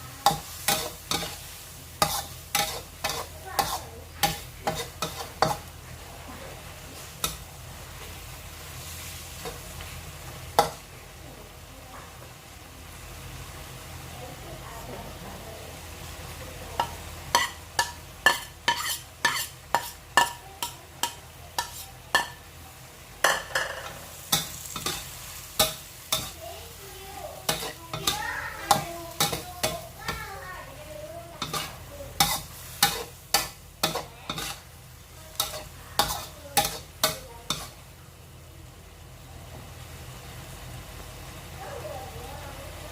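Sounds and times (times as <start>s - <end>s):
seafood sizzling: 0.0s - 42.9s
metal spatula striking a wok: 0.2s - 1.4s, 2.0s - 5.6s, 16.8s - 22.4s, 23.2s - 26.4s, 27.4s - 30.2s, 31.4s - 34.6s, 35.3s - 37.8s.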